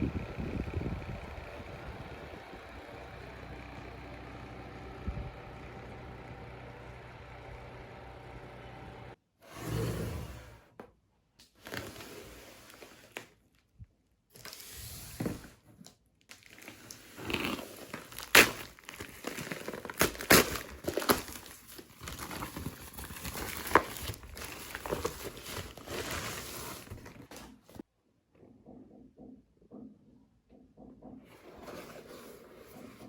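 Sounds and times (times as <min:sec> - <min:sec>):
packaging crinkling and rustling: 0:11.5 - 0:13.7, 0:15.8 - 0:27.8.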